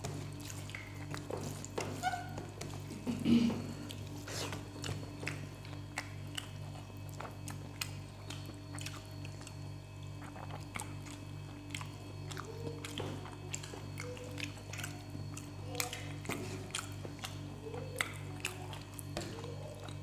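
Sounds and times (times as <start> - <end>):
chewing clicks and smacks: 0.0 - 3.0, 3.8 - 20.0
steady low hum: 0.0 - 20.0.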